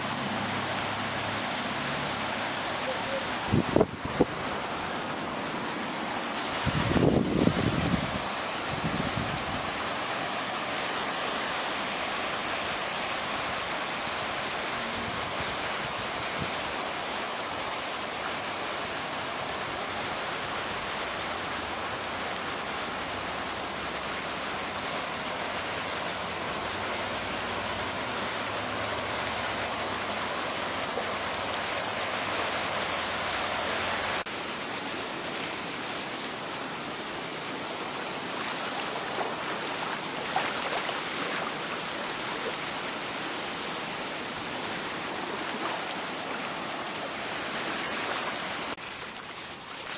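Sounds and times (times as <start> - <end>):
floodwater rushing: 0.0 - 49.9.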